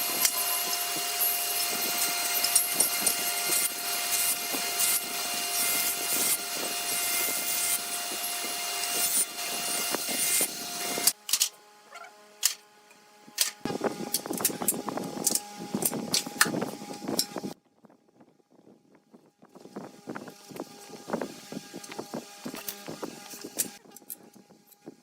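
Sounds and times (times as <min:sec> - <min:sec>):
power tool cutting wood: 0:00.0 - 0:11.2, 0:20.4 - 0:23.8.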